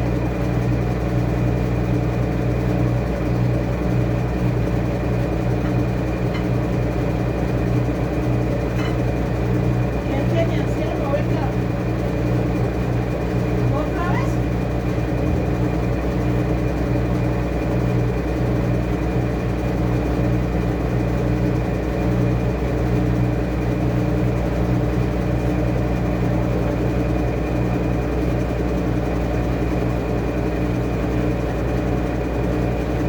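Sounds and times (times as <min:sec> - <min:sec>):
motor hum with high whine: 0:00.0 - 0:33.0
washing machine running: 0:00.0 - 0:33.0.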